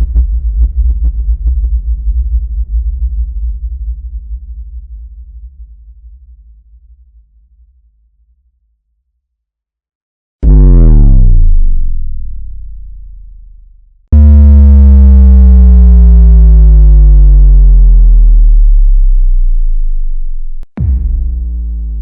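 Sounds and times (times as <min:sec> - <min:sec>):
synthesized bass drops: 0:10.4 - 0:22.0.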